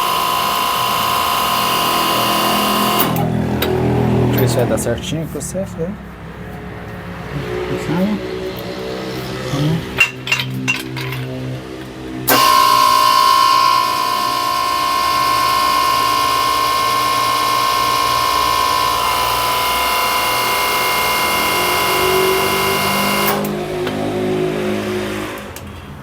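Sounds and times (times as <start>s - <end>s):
low hum: 0.0s - 20.4s
crimping press whining: 0.0s - 26.0s.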